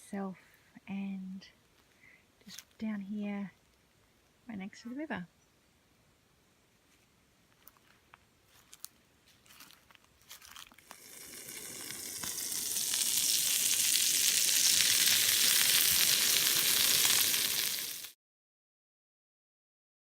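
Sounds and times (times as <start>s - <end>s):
loud high hiss: 10.9s - 18.2s.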